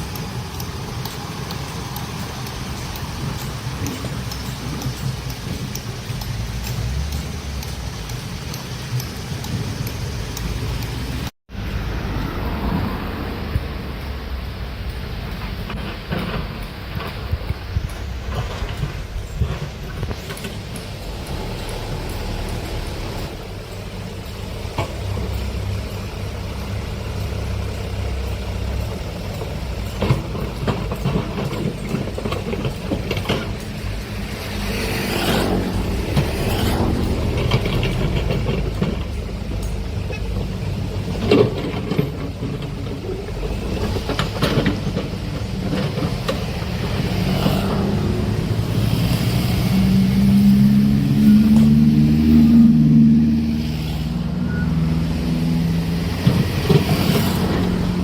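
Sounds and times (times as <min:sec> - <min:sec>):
excavator diesel engine: 0:00.0 - 0:58.0
metallic knocks and clanks: 0:15.6 - 0:49.2.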